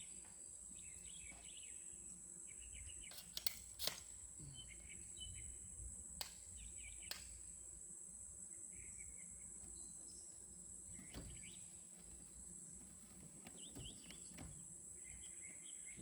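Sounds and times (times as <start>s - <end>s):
insects droning: 0.0s - 16.0s
sharp clicks: 7.0s - 7.4s.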